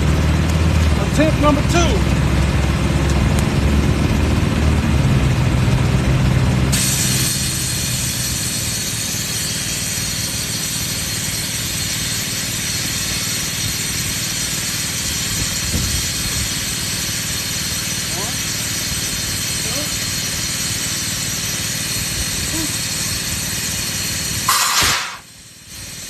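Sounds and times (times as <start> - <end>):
air compressor humming: 0.0 - 26.0
compressed air hissing: 6.7 - 26.0.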